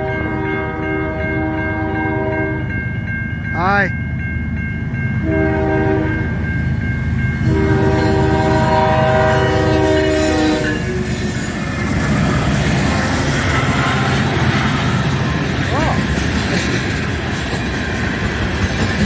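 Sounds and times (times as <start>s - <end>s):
locomotive air horn chord: 0.0s - 2.7s, 5.2s - 6.3s, 7.4s - 11.1s
passing train rumble: 0.0s - 19.0s.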